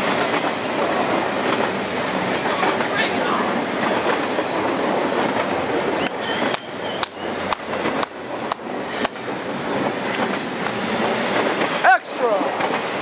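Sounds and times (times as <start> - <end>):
freight train wheels rumbling: 0.0 - 13.0
faint wheel squeal: 6.0 - 7.3.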